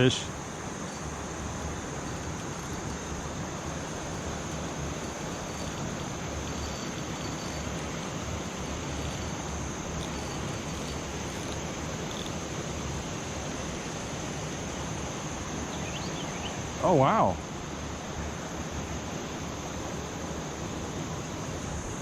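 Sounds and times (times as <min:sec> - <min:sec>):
crickets droning: 0:00.0 - 0:22.0.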